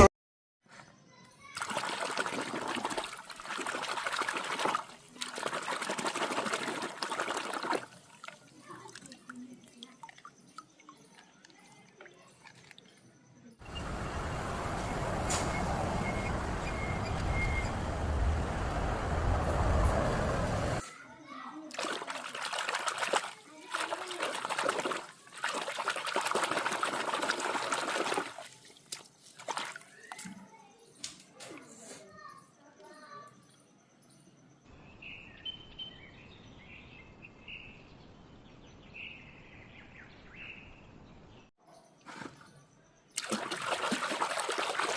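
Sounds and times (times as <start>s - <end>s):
water dripping: 1.6s - 13.1s, 21.7s - 31.2s, 43.2s - 44.9s
running water: 1.6s - 14.7s, 21.7s - 30.5s, 43.2s - 44.9s.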